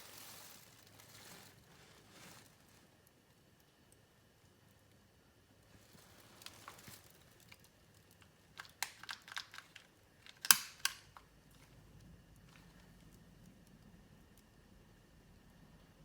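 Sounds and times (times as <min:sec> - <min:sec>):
small objects clicking: 0:06.3 - 0:11.7.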